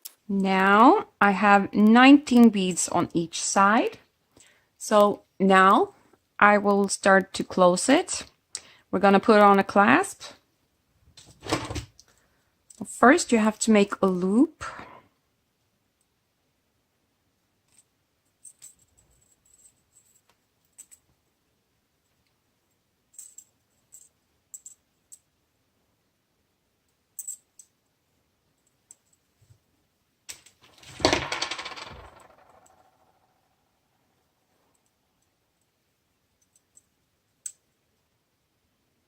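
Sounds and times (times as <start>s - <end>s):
small metal pieces clattering: 30.7s - 32.8s.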